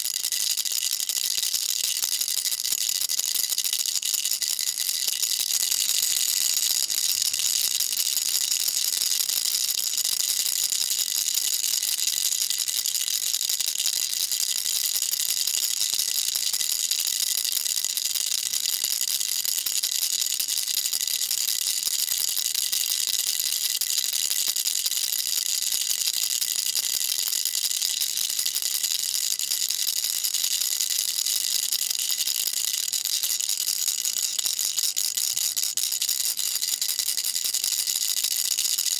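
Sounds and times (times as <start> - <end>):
baby rattle shaken rapidly: 0.0 - 19.8.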